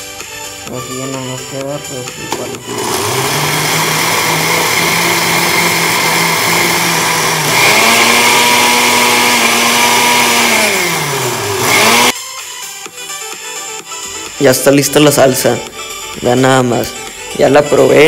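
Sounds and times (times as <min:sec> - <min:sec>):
blender motor hum: 0:02.2 - 0:12.2.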